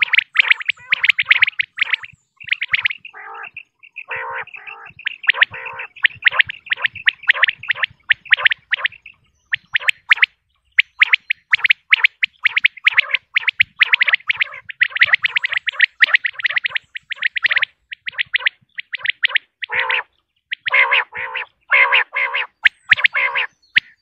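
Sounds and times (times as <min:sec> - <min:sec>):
lower rasping bird notes: 0:00.0 - 0:24.0
quail calling: 0:00.0 - 0:24.0.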